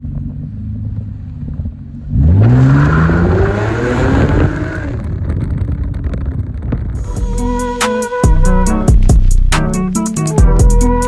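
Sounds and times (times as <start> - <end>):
car engine rumbling and revving: 0.0 - 7.5.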